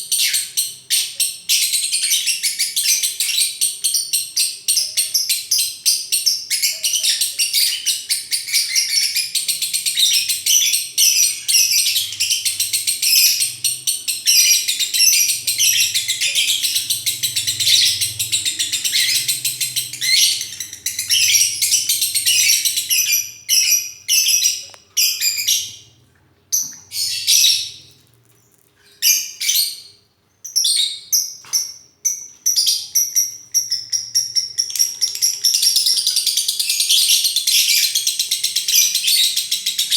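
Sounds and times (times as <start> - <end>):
lovebird chattering: 6.4 - 25.7.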